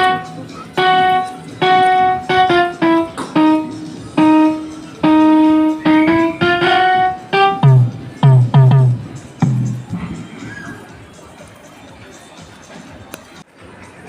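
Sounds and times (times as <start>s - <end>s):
digital keyboard melody: 0.0s - 10.4s.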